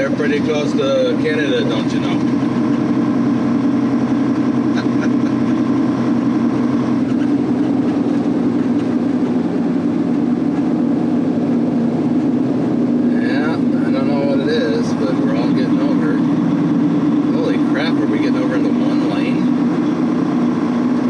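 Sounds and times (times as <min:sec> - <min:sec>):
road noise: 0:00.0 - 0:21.0
truck diesel engine droning: 0:00.0 - 0:21.0.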